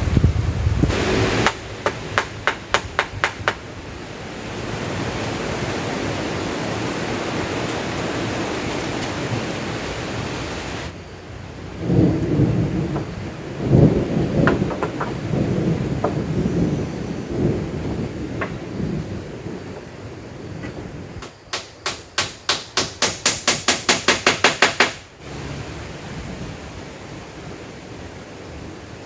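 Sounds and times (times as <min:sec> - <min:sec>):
low rumbling surges: 0:00.0 - 0:21.5, 0:25.1 - 0:29.0
heavy rain falling: 0:00.0 - 0:29.0
sharp knocks: 0:01.3 - 0:03.6, 0:14.4 - 0:15.2, 0:20.6 - 0:25.0.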